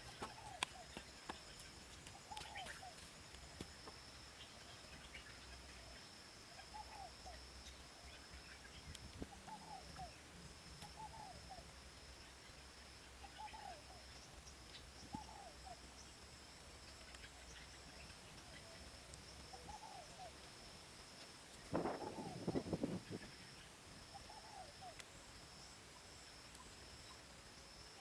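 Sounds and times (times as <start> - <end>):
bird calling: 0.0 - 3.1, 6.6 - 10.2, 10.8 - 11.7, 13.2 - 14.2, 15.0 - 15.8, 19.5 - 20.4, 21.7 - 23.4, 24.1 - 25.0.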